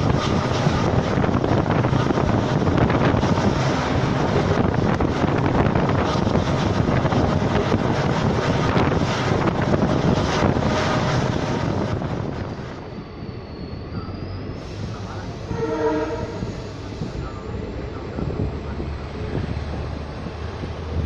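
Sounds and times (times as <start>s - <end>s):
moving train running noise: 0.0s - 21.0s
wind buffeting microphone: 0.0s - 21.0s
faint high-pitched squeal: 12.6s - 17.5s.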